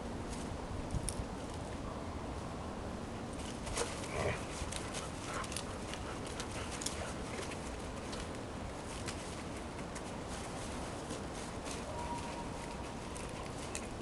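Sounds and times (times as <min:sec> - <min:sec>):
light clicks and crackles: 0:03.3 - 0:14.0.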